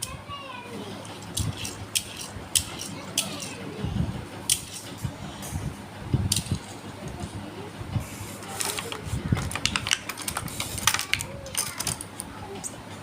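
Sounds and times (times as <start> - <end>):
sharp handling clicks: 1.2 - 3.5.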